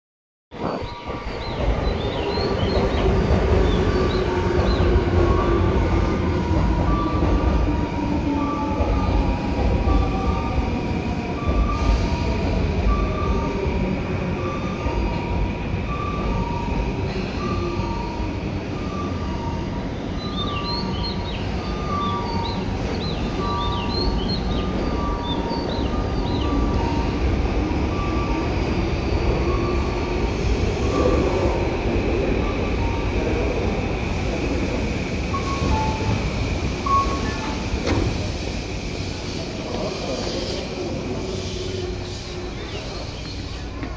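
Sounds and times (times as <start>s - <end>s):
train rail and motor noise: 0.6s - 43.9s
high wheel squeals: 35.2s - 43.9s.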